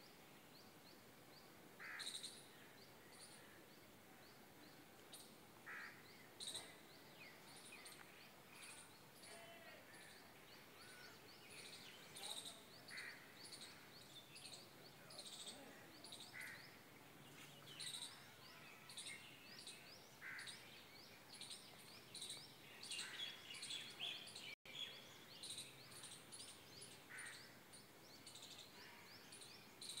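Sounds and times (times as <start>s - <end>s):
light background hiss: 0.0s - 18.3s
birds chirping: 1.8s - 30.0s.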